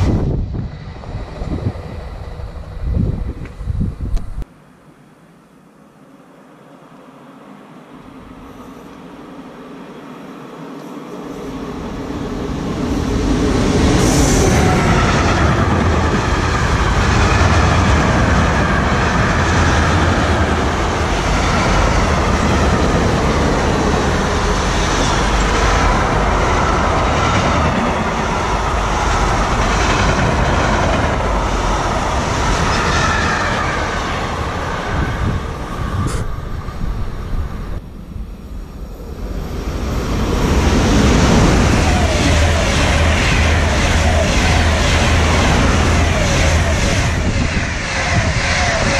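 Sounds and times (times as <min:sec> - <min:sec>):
train wheels rumbling on rails: 0:10.5 - 0:48.9.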